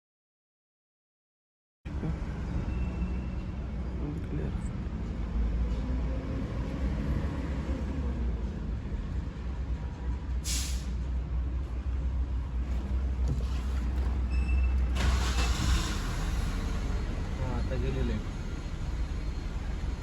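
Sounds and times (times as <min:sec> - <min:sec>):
brief hiss: 0:10.5 - 0:11.0
car engine running: 0:12.3 - 0:20.0.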